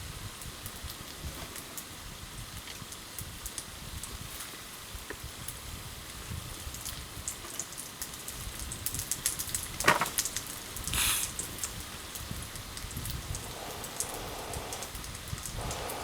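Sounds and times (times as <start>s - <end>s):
campfire crackling: 6.2s - 16.0s
brief hiss: 10.9s - 11.7s, 13.3s - 16.0s.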